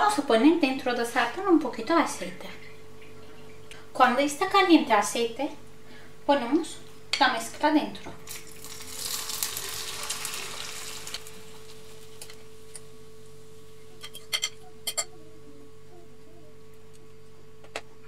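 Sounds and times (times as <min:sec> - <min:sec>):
egg mixture sizzling in oil: 0:08.2 - 0:13.8.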